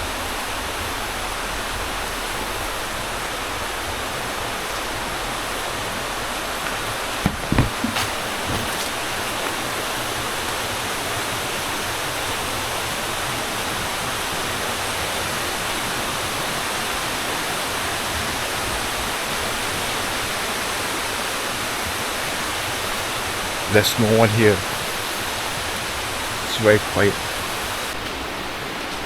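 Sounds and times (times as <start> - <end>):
short knocks: 6.6 - 9.8.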